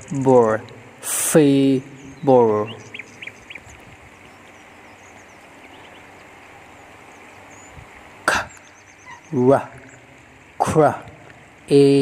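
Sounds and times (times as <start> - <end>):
low steady hiss: 0.0 - 12.0
faint bird chirps: 1.6 - 10.2.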